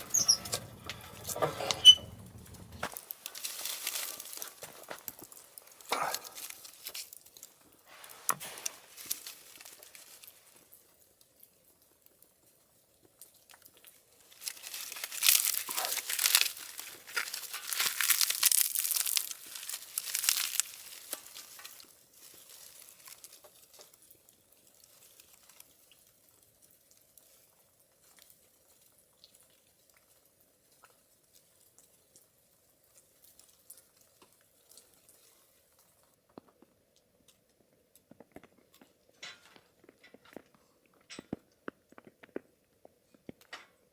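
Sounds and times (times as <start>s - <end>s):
faint clicks and crackles: 0.0s - 32.3s
paper crumpling and tearing: 14.3s - 23.4s.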